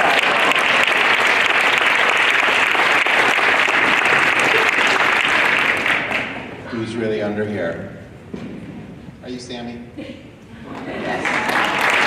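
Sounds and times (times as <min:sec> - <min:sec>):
children applauding: 0:00.0 - 0:06.6, 0:10.8 - 0:12.0.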